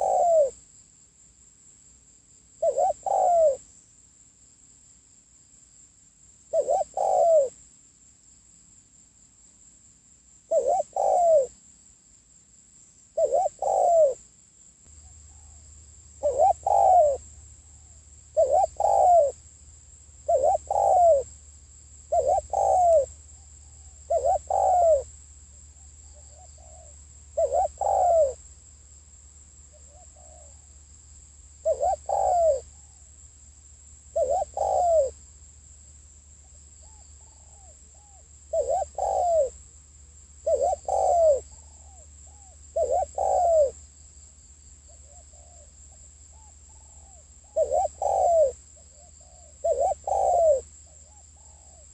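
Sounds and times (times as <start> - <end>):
dove cooing: 0.0 - 0.6, 2.6 - 3.6, 6.5 - 7.6, 10.5 - 11.6, 13.2 - 14.2, 16.2 - 19.4, 20.2 - 21.4, 22.1 - 25.1, 25.8 - 28.4, 29.7 - 30.7, 31.6 - 33.0, 34.1 - 35.2, 36.8 - 39.6, 40.4 - 43.8, 44.9 - 45.7, 46.3 - 51.9.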